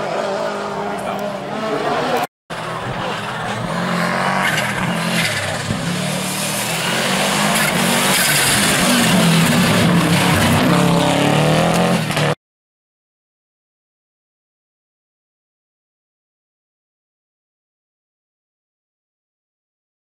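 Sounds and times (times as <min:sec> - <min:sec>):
tyre and road noise: 0:00.0 - 0:12.4.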